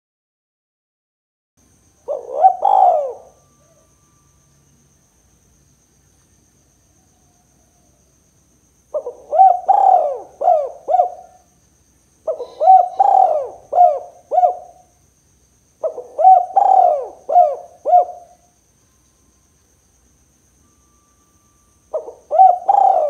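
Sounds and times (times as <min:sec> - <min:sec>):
dove cooing: 0:02.0 - 0:03.9, 0:08.9 - 0:11.5, 0:12.2 - 0:14.9, 0:15.8 - 0:18.4, 0:21.9 - 0:23.0.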